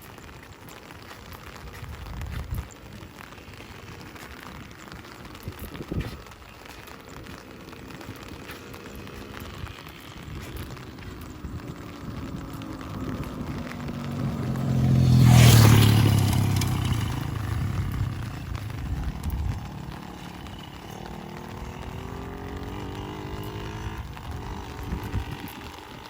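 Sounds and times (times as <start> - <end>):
steady rain: 0.0 - 26.0
faint engine rising in pitch: 6.9 - 26.0
vehicle passing by: 7.2 - 26.0.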